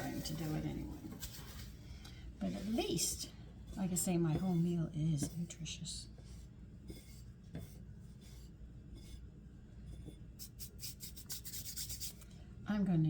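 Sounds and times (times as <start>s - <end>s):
brushing strokes: 10.0s - 12.2s
chicken rubbing in flour: 10.4s - 12.2s.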